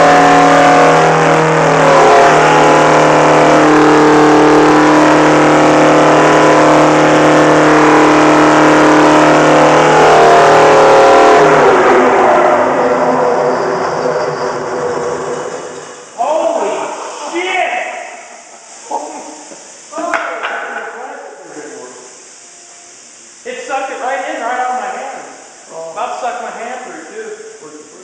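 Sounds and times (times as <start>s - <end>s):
truck engine revving high: 0.0s - 16.2s.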